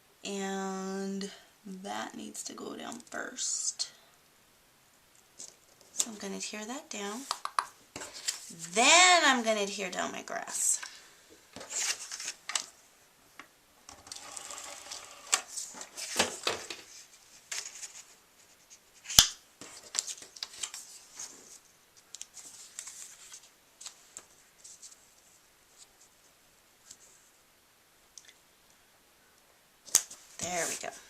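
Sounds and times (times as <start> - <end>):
paper rustling and scraping: 8.0 - 8.8, 11.6 - 12.5, 13.9 - 26.1, 30.4 - 31.0.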